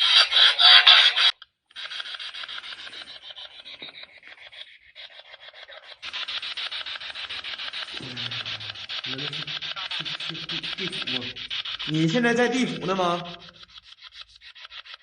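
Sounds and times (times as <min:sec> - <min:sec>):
radio static pulses: 0:06.0 - 0:13.7.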